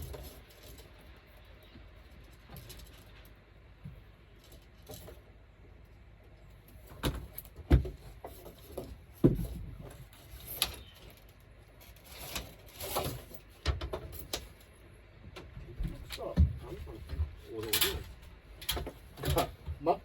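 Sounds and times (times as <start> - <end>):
tools and parts clunking: 15.3 - 20.0.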